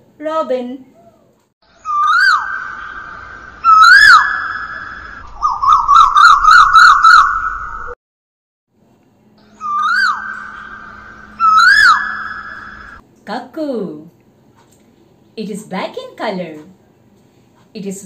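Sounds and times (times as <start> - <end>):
bird song whistled notes: 1.7 - 8.0, 9.4 - 13.0.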